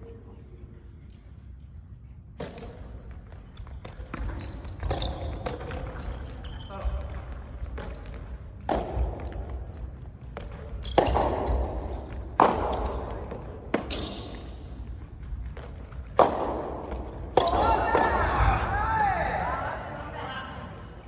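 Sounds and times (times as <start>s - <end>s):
ball bouncing: 2.4s - 18.6s
shoes squeaking on court: 3.2s - 18.5s
racket hitting tennis ball: 8.6s - 9.6s, 10.3s - 14.8s, 15.4s - 18.4s.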